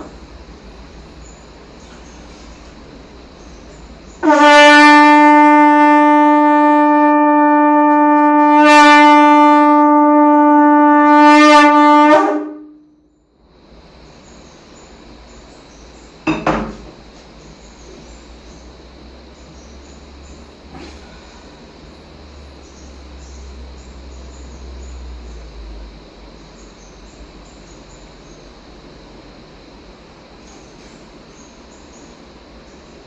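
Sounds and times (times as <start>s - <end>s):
conch shell blown: 4.2s - 13.0s
short knock: 16.3s - 17.0s.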